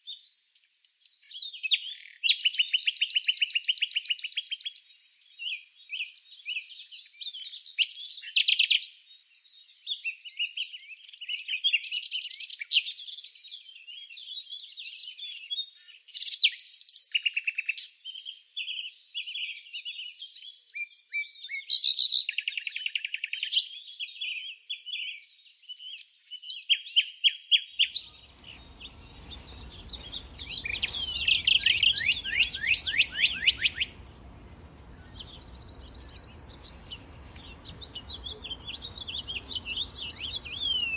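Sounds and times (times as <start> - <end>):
songbirds chirping and singing: 27.6 - 40.9
faint low background hiss: 28.0 - 40.9.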